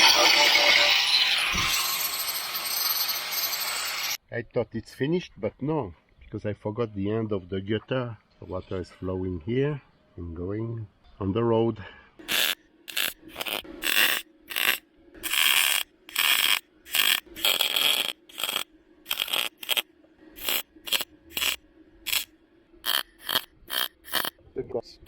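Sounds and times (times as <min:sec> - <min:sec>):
welder crackling: 0:12.2 - 0:24.3.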